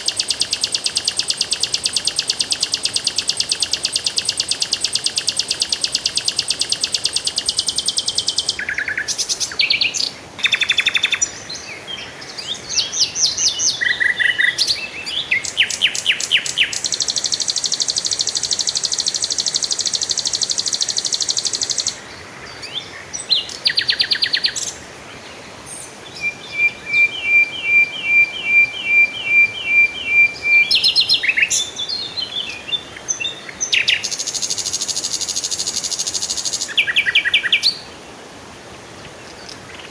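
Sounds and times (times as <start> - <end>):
songbirds singing and chirping: 0.0 - 38.1.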